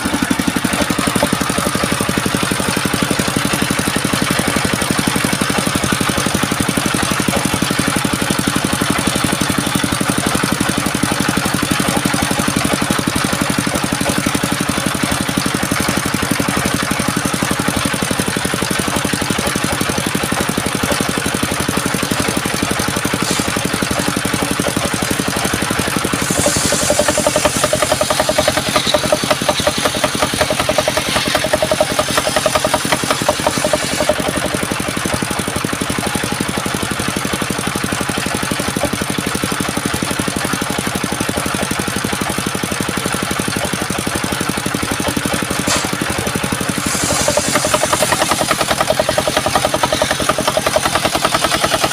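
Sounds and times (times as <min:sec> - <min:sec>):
saw blade cutting: 0:00.0 - 0:03.7, 0:23.0 - 0:35.4, 0:45.5 - 0:51.9
sawmill motor running: 0:00.0 - 0:51.9.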